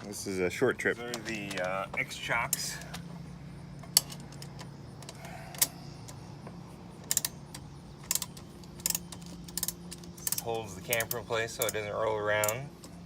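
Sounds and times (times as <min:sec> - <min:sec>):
steady low hum: 0:00.0 - 0:13.0
metallic clicks of hardware: 0:03.8 - 0:13.0.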